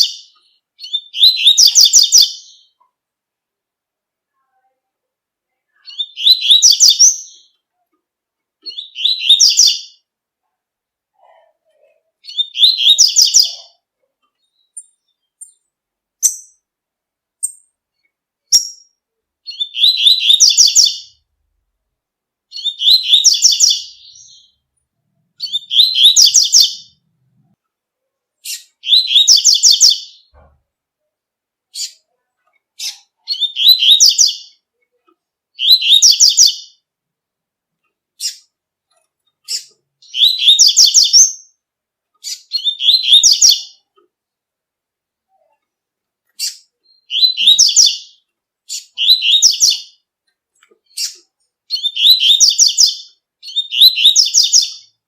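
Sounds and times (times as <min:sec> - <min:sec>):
bird singing high rapid phrases: 0:00.0 - 0:02.9, 0:05.7 - 0:07.6, 0:08.6 - 0:10.1, 0:11.8 - 0:16.7, 0:17.4 - 0:21.3, 0:22.5 - 0:24.7, 0:25.3 - 0:27.1, 0:28.4 - 0:30.6, 0:31.7 - 0:32.1, 0:32.7 - 0:34.7, 0:35.5 - 0:36.9, 0:38.2 - 0:38.6, 0:39.4 - 0:44.0, 0:46.3 - 0:50.1, 0:50.8 - 0:55.0.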